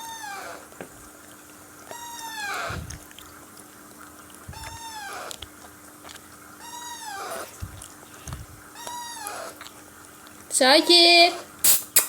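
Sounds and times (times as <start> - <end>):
parakeet chicks begging calls: 1.9 - 2.9, 6.6 - 7.5, 8.7 - 9.6.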